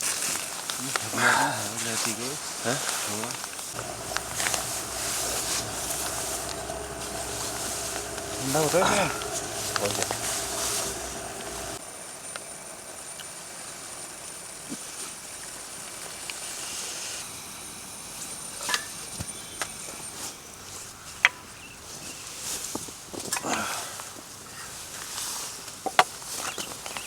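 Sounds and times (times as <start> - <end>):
steady hum: 3.8 - 11.8.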